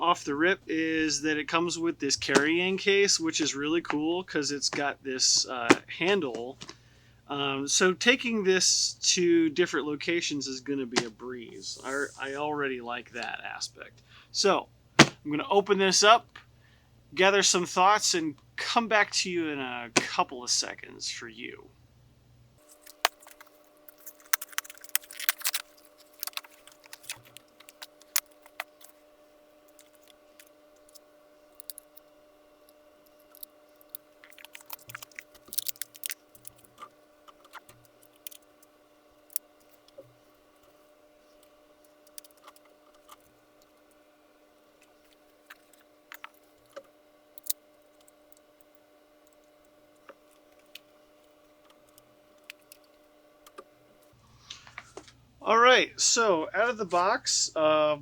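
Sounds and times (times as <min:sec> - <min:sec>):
faint steady hum: 0:00.0 - 0:58.0
packaging crinkling: 0:22.6 - 0:29.0, 0:29.6 - 0:38.7
handling clicks and rattles: 0:22.7 - 0:28.9, 0:33.1 - 0:38.5.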